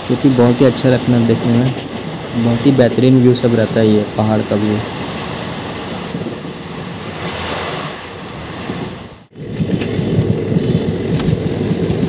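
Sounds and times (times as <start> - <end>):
train rushing noise: 0.0 - 12.0
wind on microphone: 4.7 - 12.0.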